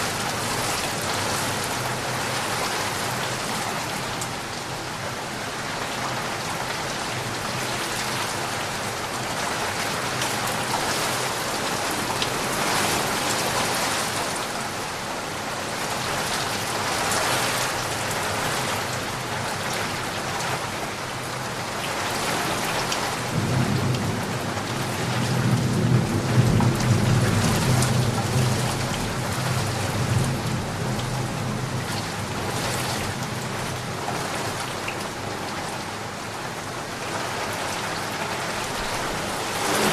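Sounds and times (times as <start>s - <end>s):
steady rain falling: 0.0s - 39.9s
low rumble of thunder: 23.2s - 33.8s, 38.8s - 39.9s.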